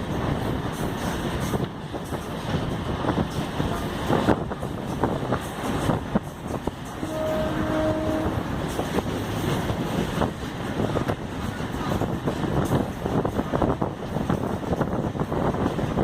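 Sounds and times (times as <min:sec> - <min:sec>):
train rail rumble: 0:00.0 - 0:16.0
wind on microphone: 0:00.0 - 0:16.0
short tone: 0:07.0 - 0:08.4.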